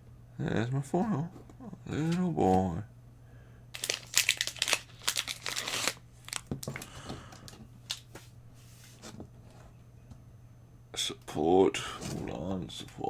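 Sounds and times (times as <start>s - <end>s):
cards being flipped through: 3.8s - 8.3s.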